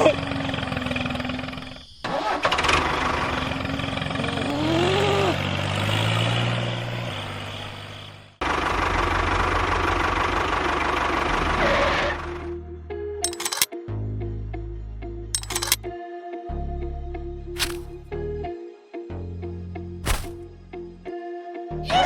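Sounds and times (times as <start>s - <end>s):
engine idling: 0.0s - 5.7s, 7.6s - 12.5s.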